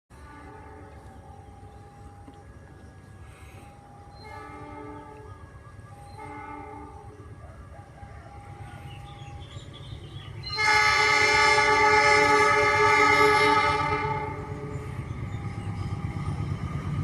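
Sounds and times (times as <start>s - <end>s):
train horn blasts: 0.1s - 2.2s, 3.4s - 7.3s, 10.4s - 15.0s
low rumble of train: 0.1s - 17.0s.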